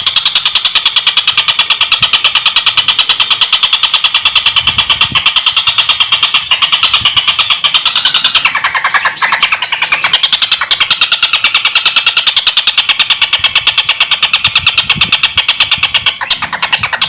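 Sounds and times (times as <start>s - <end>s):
kingfisher cackling call: 4.8s - 14.7s, 15.5s - 17.0s.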